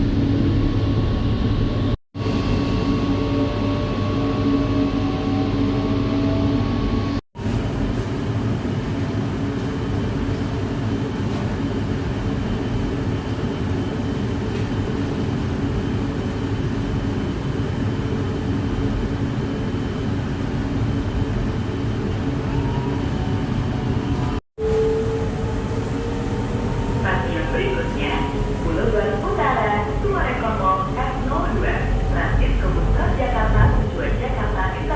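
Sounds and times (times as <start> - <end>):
train wheels rumbling on track: 7.4 - 34.9.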